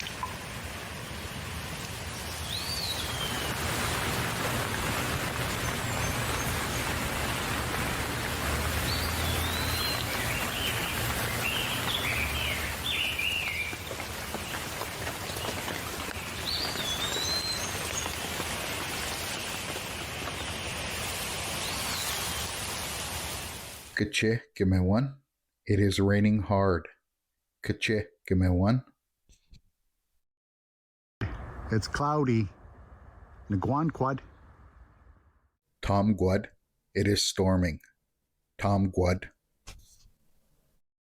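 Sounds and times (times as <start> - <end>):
steady rain falling: 0.0 - 24.0
bird calling and chirping: 2.3 - 3.5, 8.8 - 18.6.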